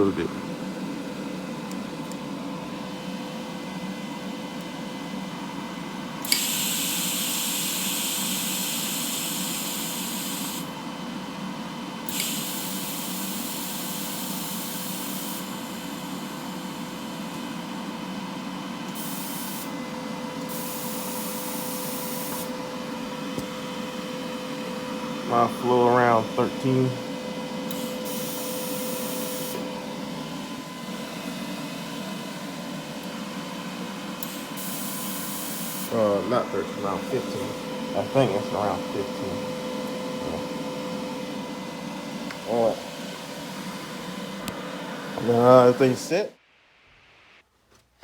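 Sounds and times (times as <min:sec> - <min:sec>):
steady machine hum: 0:00.0 - 0:46.4
gas hissing from welding torch: 0:06.3 - 0:10.7, 0:12.1 - 0:15.8, 0:19.0 - 0:19.7, 0:34.2 - 0:36.3.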